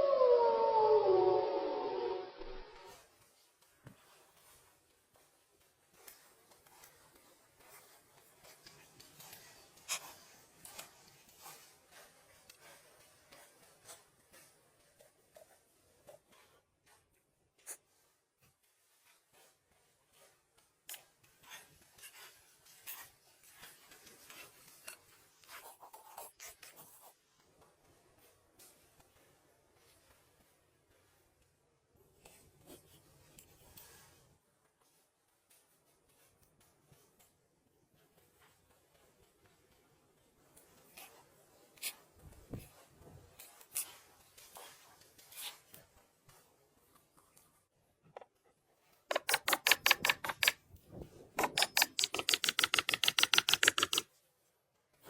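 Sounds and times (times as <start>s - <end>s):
sharp clicks or taps: 49.1s - 50.6s, 51.4s - 54.0s
scraping and rubbing: 49.1s - 54.0s.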